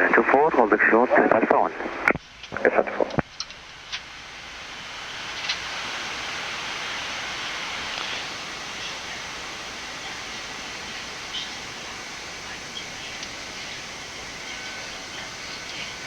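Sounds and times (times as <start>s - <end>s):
aircraft cockpit rushing hiss: 3.8s - 16.0s.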